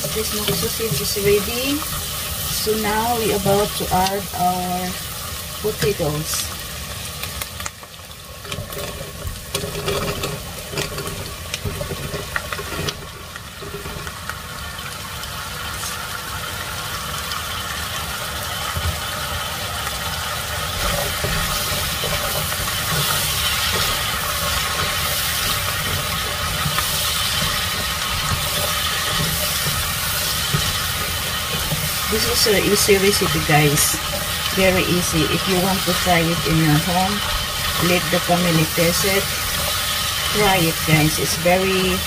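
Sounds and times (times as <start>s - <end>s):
frying sizzle: 0.0s - 42.0s
potatoes clattering into pot: 8.4s - 14.5s.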